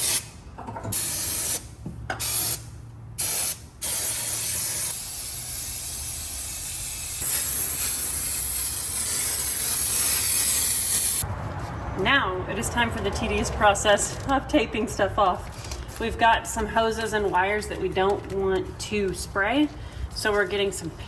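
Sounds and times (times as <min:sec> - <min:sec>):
spray can hissing: 0:00.0 - 0:00.3, 0:00.9 - 0:01.6, 0:02.2 - 0:02.6, 0:03.2 - 0:11.2.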